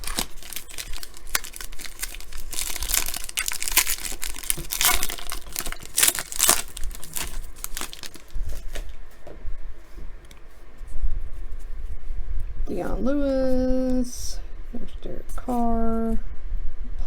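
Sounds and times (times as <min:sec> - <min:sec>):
plastic wrapper crinkling and tearing: 0:00.0 - 0:09.0.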